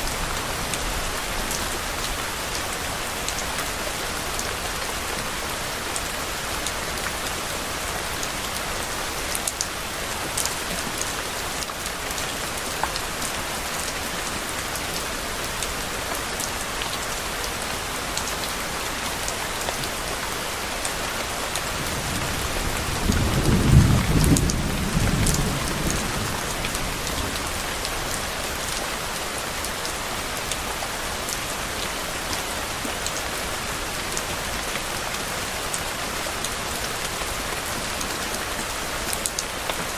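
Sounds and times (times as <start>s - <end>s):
steady rain: 0.0s - 39.9s
low roll of thunder: 21.8s - 27.6s.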